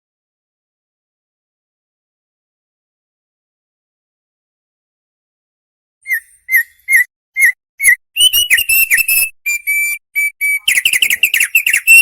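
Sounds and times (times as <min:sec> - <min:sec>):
bird trill: 0:06.0 - 0:12.0
songbird singing whistled notes: 0:06.0 - 0:12.0.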